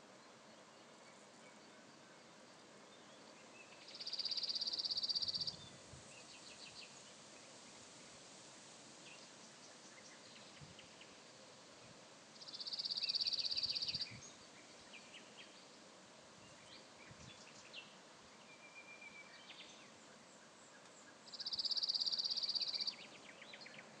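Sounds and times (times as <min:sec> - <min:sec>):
bird chirps: 0:02.8 - 0:05.6, 0:12.4 - 0:15.7, 0:16.5 - 0:24.0.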